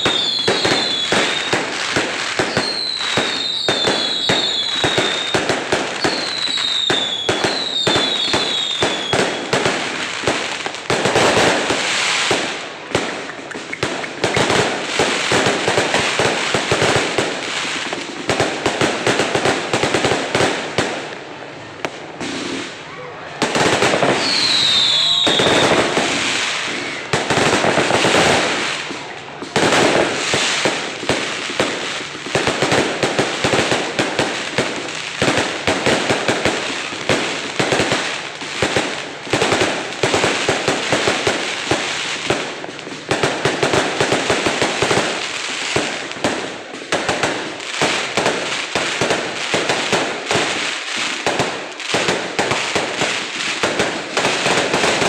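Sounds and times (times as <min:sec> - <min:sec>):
falling firework whistle: 0:00.0 - 0:09.6, 0:11.7 - 0:15.5, 0:23.9 - 0:27.2
fireworks bangs and crackles: 0:00.0 - 0:55.0.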